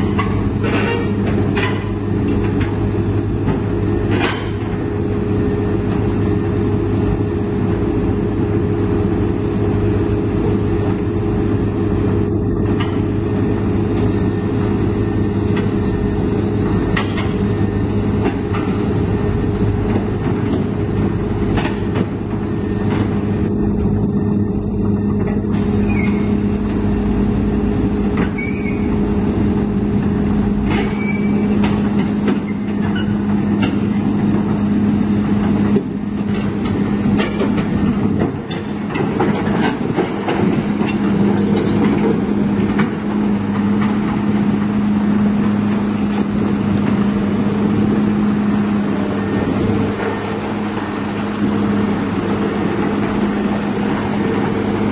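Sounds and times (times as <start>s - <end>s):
knocks and clanks: 0.0s - 2.8s, 3.4s - 4.8s, 16.6s - 17.5s, 19.8s - 23.2s, 30.6s - 34.6s, 35.2s - 44.7s
large diesel engine running: 0.0s - 54.9s.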